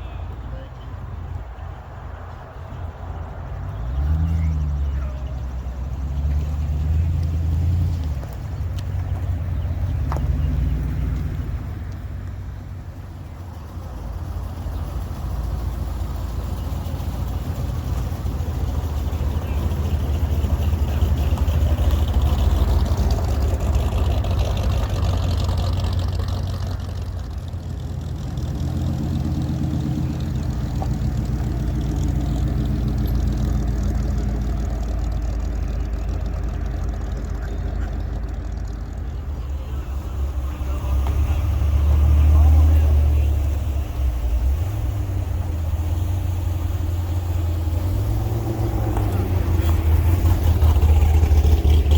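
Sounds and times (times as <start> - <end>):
cars driving past: 0.0 - 51.9.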